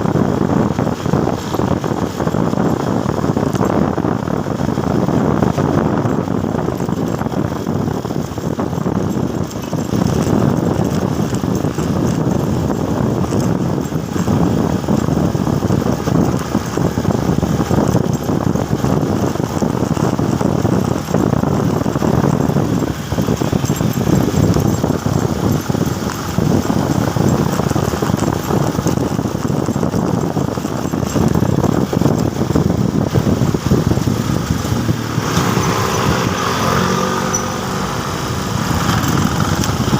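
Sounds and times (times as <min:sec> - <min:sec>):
motorcycle engine running: 0:00.0 - 0:39.9
road noise rushing: 0:00.0 - 0:39.9.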